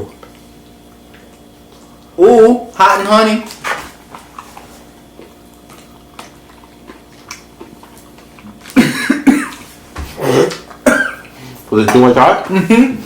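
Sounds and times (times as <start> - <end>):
person coughing hard: 8.7 - 9.6, 10.2 - 11.3.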